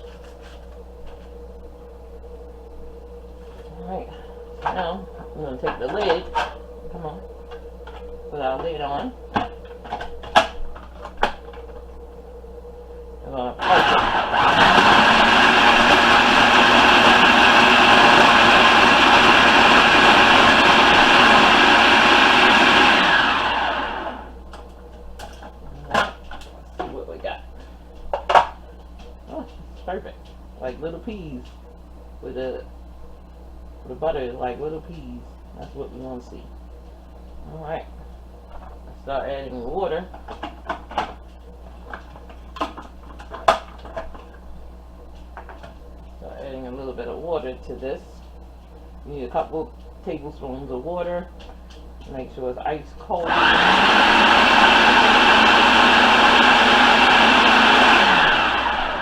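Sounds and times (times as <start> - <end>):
low hum: 0.0 - 59.0
food processor motor running: 13.6 - 24.4, 53.2 - 59.0.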